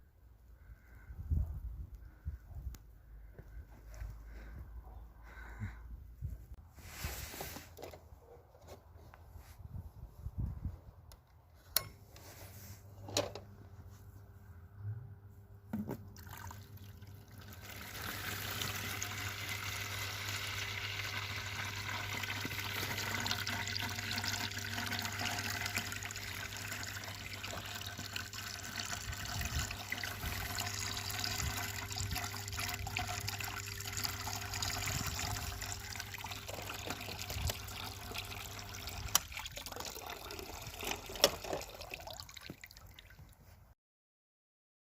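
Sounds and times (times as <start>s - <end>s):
pump humming: 16.2s - 42.0s
water gushing: 16.2s - 43.1s.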